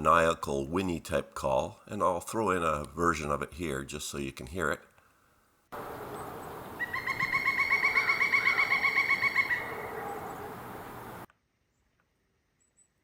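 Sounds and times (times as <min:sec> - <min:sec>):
outdoor background hiss: 0:00.0 - 0:11.6
woodpecker whinny call: 0:06.0 - 0:10.6.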